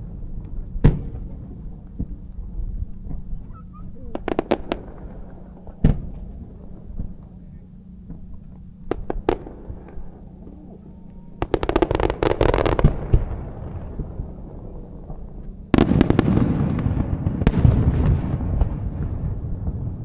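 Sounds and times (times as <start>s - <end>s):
fireworks crackling: 0.0s - 20.0s
rumbling booms: 0.0s - 20.0s
loud firework bang: 15.0s - 20.0s.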